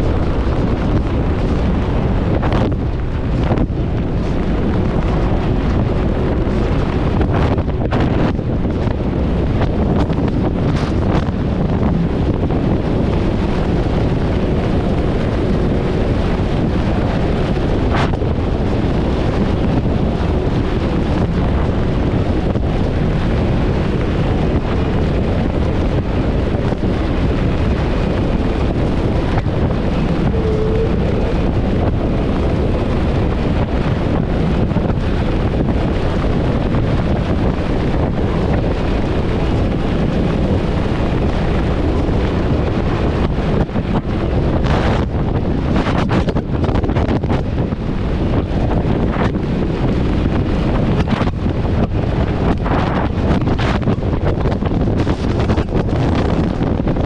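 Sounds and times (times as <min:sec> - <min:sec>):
boat hull on water: 0:00.0 - 0:57.0
outboard motor running: 0:00.0 - 0:57.0
wind buffeting microphone: 0:00.0 - 0:57.0.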